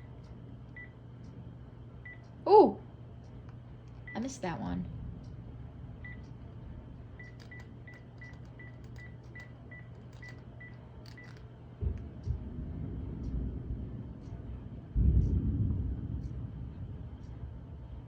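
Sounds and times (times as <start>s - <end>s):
rolling thunder: 11.8s - 18.0s.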